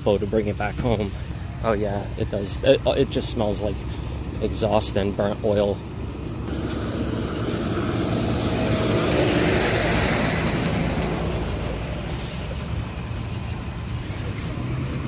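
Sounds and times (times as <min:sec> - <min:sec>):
motor vehicle engine running: 0:00.0 - 0:15.0
rushing noise: 0:06.0 - 0:15.0.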